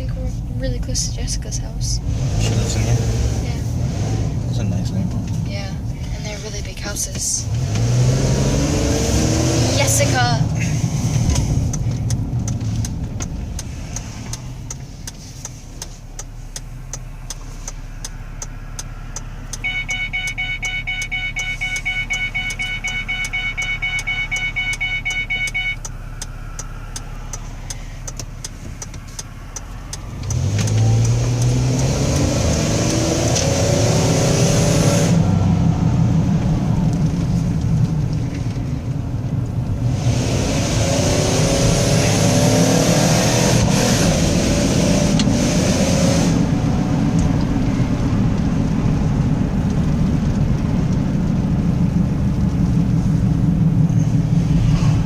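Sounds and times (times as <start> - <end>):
car engine and road noise: 0.0 - 55.0
engine revving loudly: 2.0 - 4.8, 7.5 - 10.4, 29.9 - 36.3, 39.8 - 47.0
regular ticking: 4.4 - 34.6.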